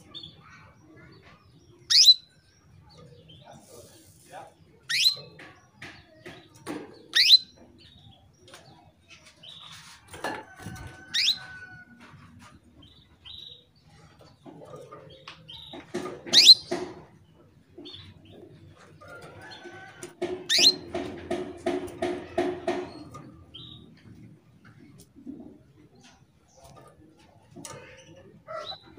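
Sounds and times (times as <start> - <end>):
canary calling: 1.8 - 2.4, 4.8 - 5.5, 7.0 - 8.0, 10.8 - 11.8, 15.5 - 17.1, 19.5 - 21.2, 27.7 - 28.9.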